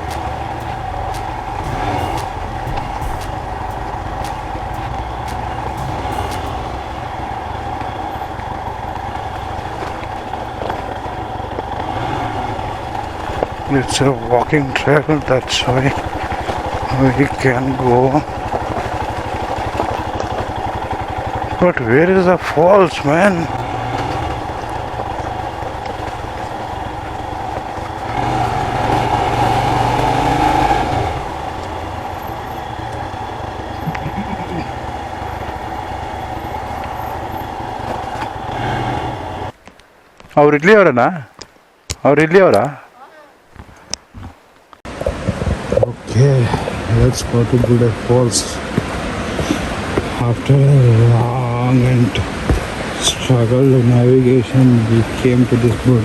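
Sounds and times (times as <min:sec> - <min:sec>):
motorcycle engine running: 0:00.0 - 0:39.6.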